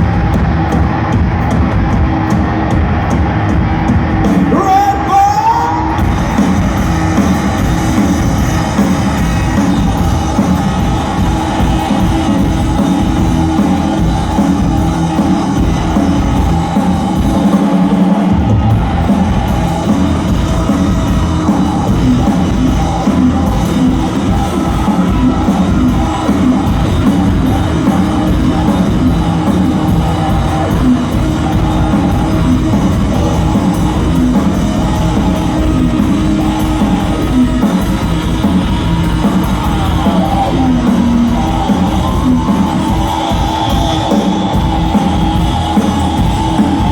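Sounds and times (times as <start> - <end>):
live rock band playing: 0.0 - 46.9
person singing: 4.4 - 6.1.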